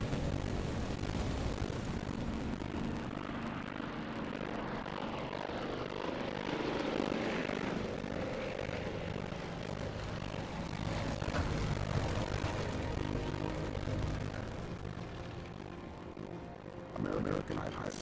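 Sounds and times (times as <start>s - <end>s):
propeller aircraft engines droning: 0.0s - 18.0s.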